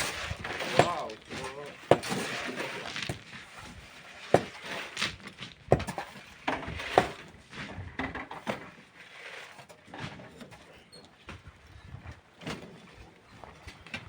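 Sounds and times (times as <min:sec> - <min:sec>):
tools scraping gravel: 0:00.0 - 0:14.0.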